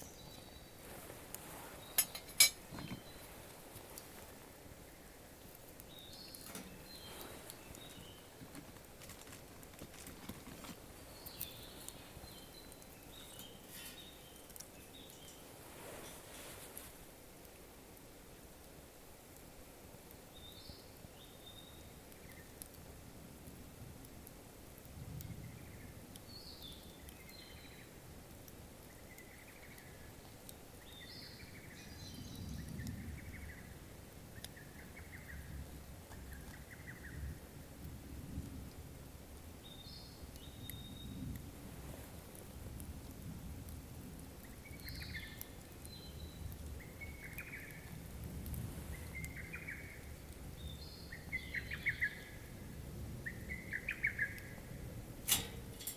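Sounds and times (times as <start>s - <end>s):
campfire crackling: 0.0s - 55.9s
birds chirping: 1.5s - 4.1s, 4.8s - 9.4s, 10.8s - 15.5s, 44.4s - 47.9s, 48.9s - 52.6s, 53.2s - 55.9s.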